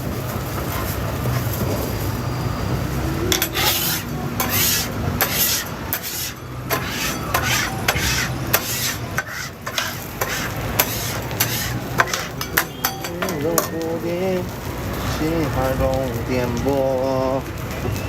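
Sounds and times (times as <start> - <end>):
metal spatula scraping griddle: 3.3 - 13.8.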